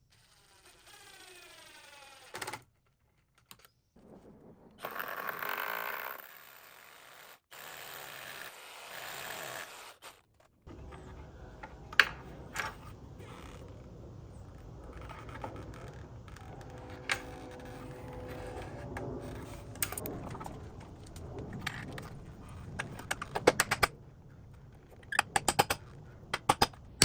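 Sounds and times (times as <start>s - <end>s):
power drill driving screws: 0.2s - 2.5s, 4.9s - 10.2s.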